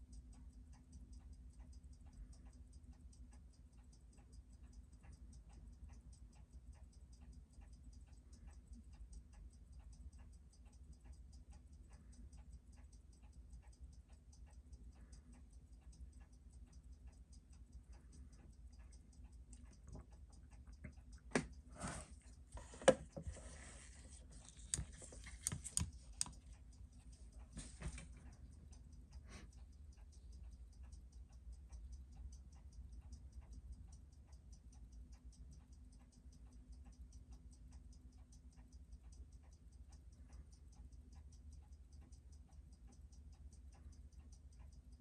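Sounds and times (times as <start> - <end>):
watch ticking fast: 0.0 - 45.0.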